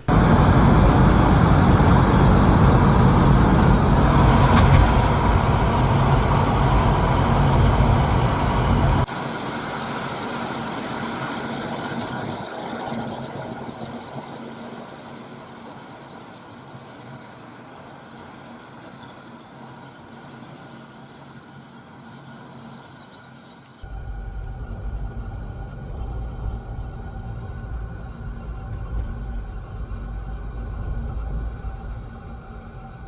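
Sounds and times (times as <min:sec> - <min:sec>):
car driving noise: 0:00.0 - 0:09.1.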